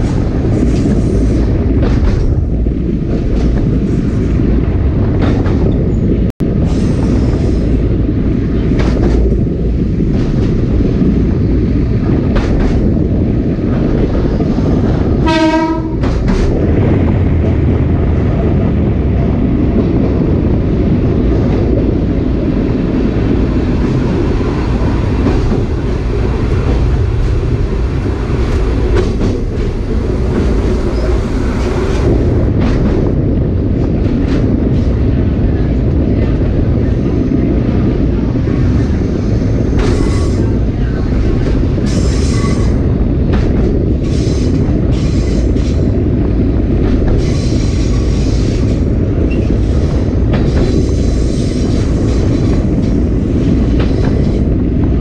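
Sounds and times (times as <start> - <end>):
train wheels clacking over rail joints: 0.0 - 4.3, 8.3 - 16.8, 23.7 - 35.2, 38.4 - 55.0
train horn blast: 15.2 - 16.2.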